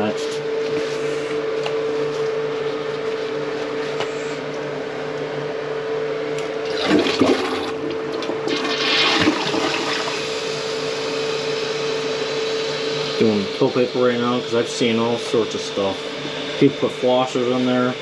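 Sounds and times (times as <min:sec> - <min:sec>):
steady background hum: 0:00.0 - 0:18.0
toilet water rushing and gurgling: 0:06.6 - 0:13.2.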